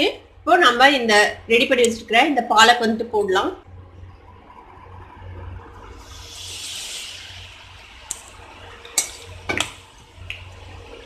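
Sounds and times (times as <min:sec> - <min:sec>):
leaves sizzling in hot oil: 0:06.0 - 0:11.0.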